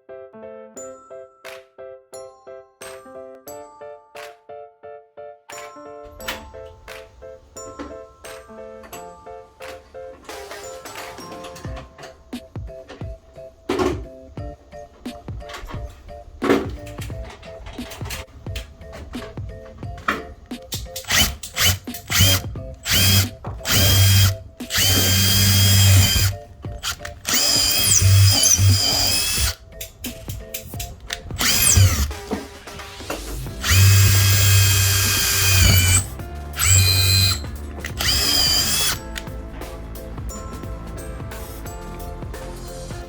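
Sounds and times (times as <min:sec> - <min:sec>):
electric power drill whining: 0:20.7 - 0:29.6, 0:31.1 - 0:39.2.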